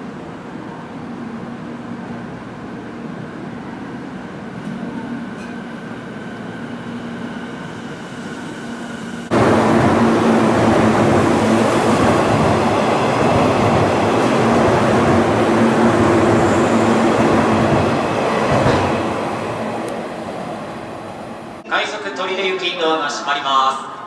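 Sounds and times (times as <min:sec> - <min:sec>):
electric train humming: 0:00.1 - 0:22.4
train rushing past: 0:06.0 - 0:24.0.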